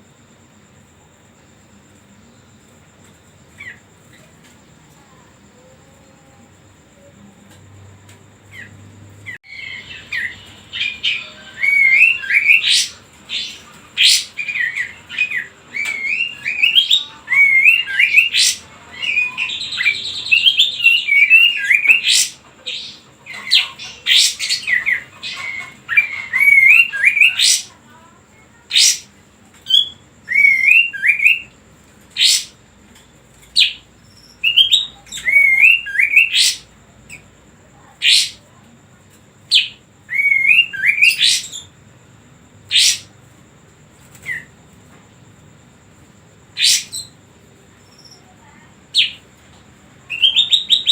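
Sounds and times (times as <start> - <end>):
songbird chirping and whistling: 3.5 - 4.4, 8.4 - 32.6, 33.5 - 38.6, 39.5 - 41.8, 42.6 - 43.2, 44.0 - 44.6, 46.5 - 49.3, 50.0 - 50.9.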